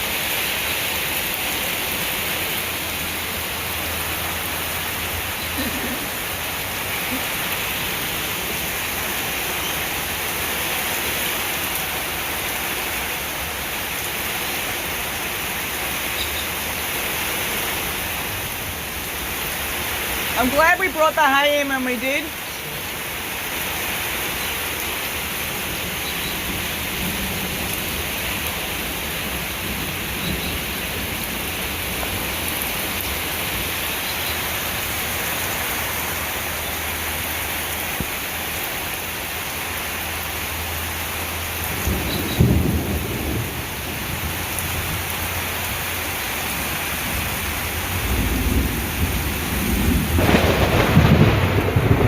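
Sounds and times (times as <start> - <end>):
heavy rain pouring: 0.0 - 52.0
thunder rumbling: 41.6 - 45.5, 47.0 - 52.0.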